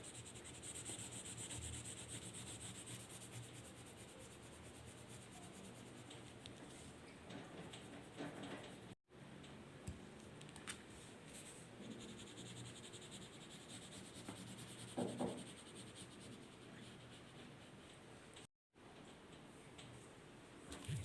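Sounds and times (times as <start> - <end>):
drawing tool scratching paper: 0.0 - 6.1.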